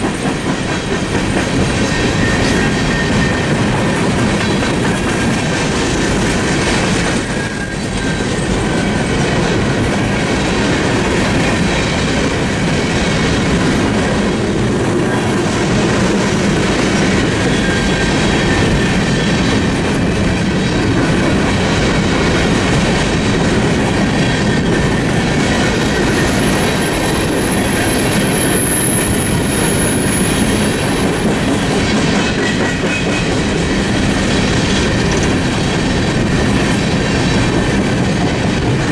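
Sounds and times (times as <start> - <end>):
high wheel squeal: 0.0 - 10.6, 12.6 - 16.8, 25.8 - 31.2
train wheels clattering over rails: 0.0 - 38.9.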